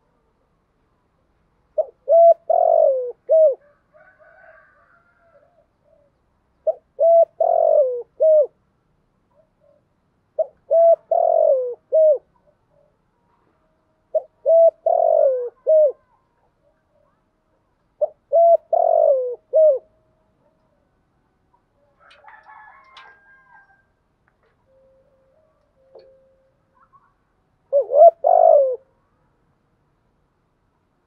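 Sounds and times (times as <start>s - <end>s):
dove cooing: 1.8s - 8.6s, 10.4s - 13.0s, 14.1s - 17.2s, 18.0s - 20.8s, 25.4s - 28.9s.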